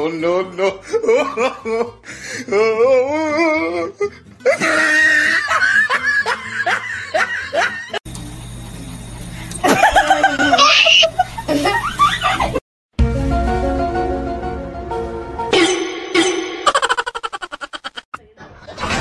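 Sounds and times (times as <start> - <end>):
music: 0.0 - 9.6, 12.9 - 16.5
person laughing hard: 0.9 - 2.0, 4.4 - 8.0, 9.6 - 12.6, 16.7 - 18.1.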